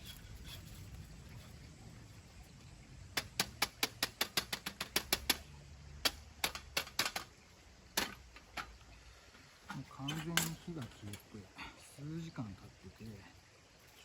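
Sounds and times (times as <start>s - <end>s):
charcoal and metal clicking: 3.2s - 7.3s.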